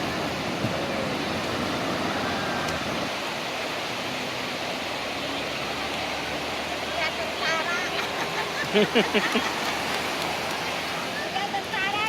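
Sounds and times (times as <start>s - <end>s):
wind on microphone: 0.0s - 3.4s
rushing surf: 0.0s - 12.0s.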